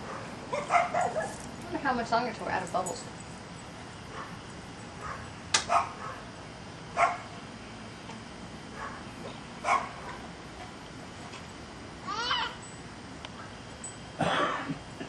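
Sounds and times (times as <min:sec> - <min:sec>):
dog barking: 0:00.0 - 0:01.4, 0:05.0 - 0:06.3, 0:07.0 - 0:07.3, 0:08.8 - 0:09.0, 0:09.6 - 0:10.2.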